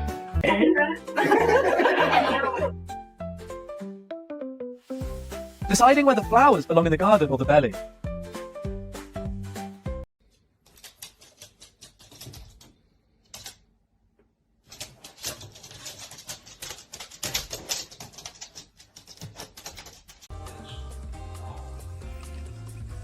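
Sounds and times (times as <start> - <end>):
rapid irregular clicking and tapping: 14.6 - 20.3.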